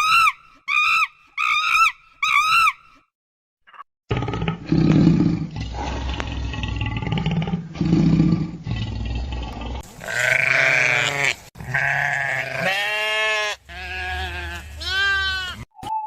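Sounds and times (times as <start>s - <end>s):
livestock bleating: 10.0s - 15.7s.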